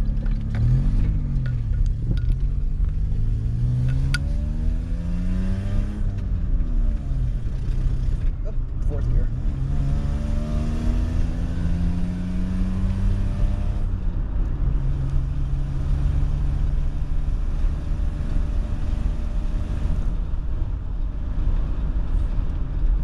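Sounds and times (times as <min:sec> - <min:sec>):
car engine pulling: 0:00.0 - 0:23.0
low road rumble: 0:00.0 - 0:23.0.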